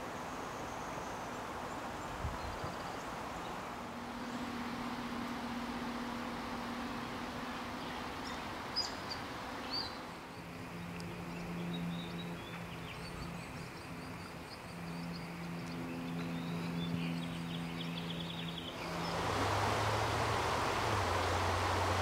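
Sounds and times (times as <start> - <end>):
background hiss: 0.0 - 22.0
low hum: 3.5 - 22.0
bird chirps: 7.7 - 10.5.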